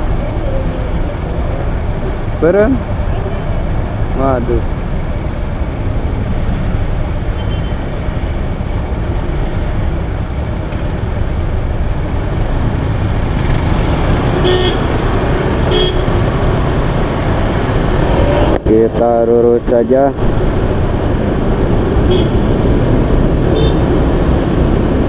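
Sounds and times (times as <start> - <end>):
traffic rumble: 0.0 - 25.0
vehicle horn toots: 14.4 - 14.9, 15.7 - 16.1, 22.1 - 22.6, 23.6 - 23.9.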